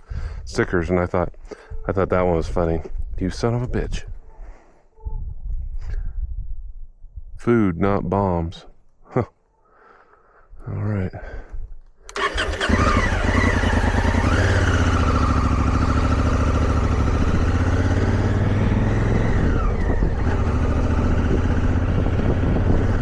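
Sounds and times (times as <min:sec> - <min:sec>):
motorcycle engine running: 0:12.2 - 0:23.0.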